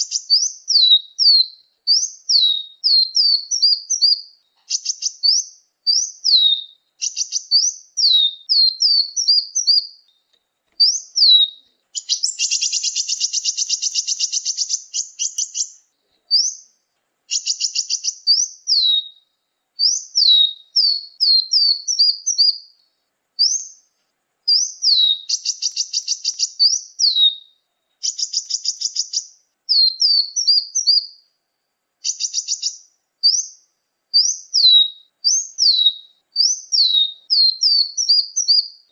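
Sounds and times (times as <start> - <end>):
buzzy bird trills: 0.0 - 16.7, 17.3 - 19.2, 24.5 - 31.2, 32.0 - 33.6
songbird chirps: 0.0 - 38.9.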